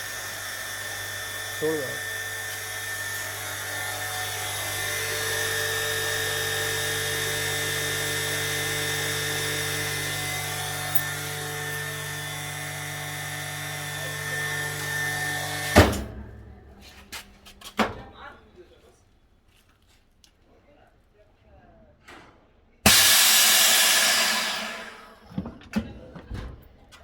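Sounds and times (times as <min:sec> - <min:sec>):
vacuum pump humming: 0:00.0 - 0:16.1, 0:22.9 - 0:25.5.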